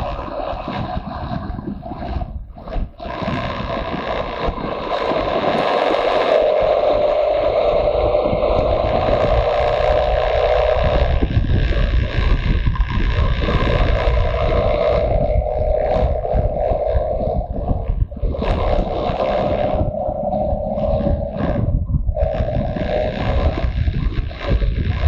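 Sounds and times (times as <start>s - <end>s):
wind rumble on microphone: 0.0s - 25.0s
motorcycle engine running: 6.6s - 24.8s.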